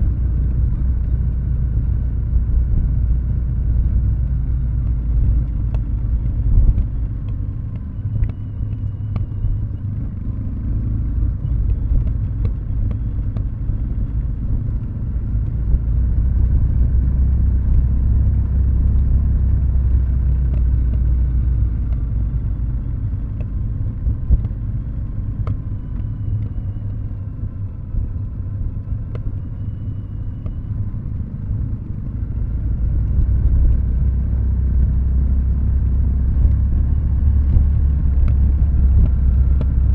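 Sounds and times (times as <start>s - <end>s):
motorcycle exhaust rumble: 0.0s - 39.9s.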